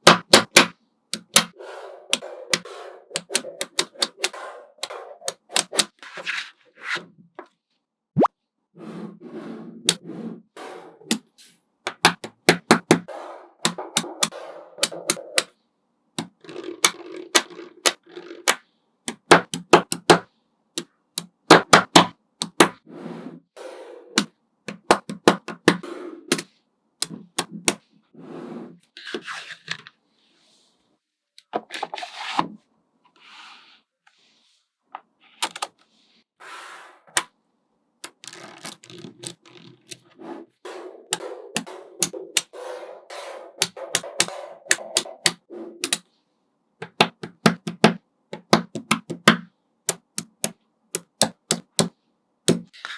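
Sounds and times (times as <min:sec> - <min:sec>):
magnetic balls clicking together: 0:00.0 - 0:06.0, 0:11.9 - 0:15.5, 0:16.2 - 0:20.2, 0:20.8 - 0:22.8, 0:24.2 - 0:27.8, 0:38.0 - 0:40.1, 0:41.1 - 0:46.0, 0:46.8 - 0:51.9, 0:52.5 - 0:52.8
balls rubbing and rolling: 0:00.0 - 0:15.6, 0:16.2 - 0:37.4, 0:38.0 - 0:46.2, 0:46.8 - 0:52.9.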